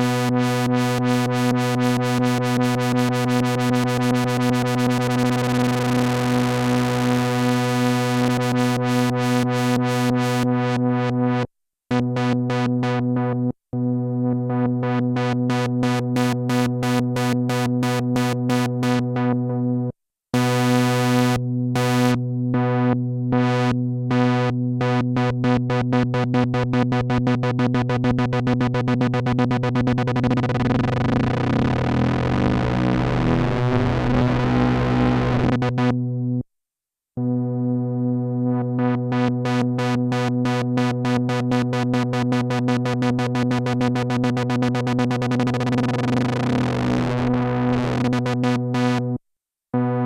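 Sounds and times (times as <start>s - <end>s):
buzzy synthesizer note stuttering: 25.2s - 36.0s, 37.2s - 49.2s, 49.8s - 50.0s.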